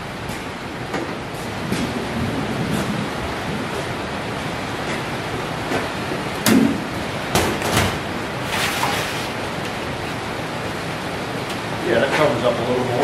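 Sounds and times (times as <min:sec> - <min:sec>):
rain on a tin roof: 0:00.0 - 0:13.0.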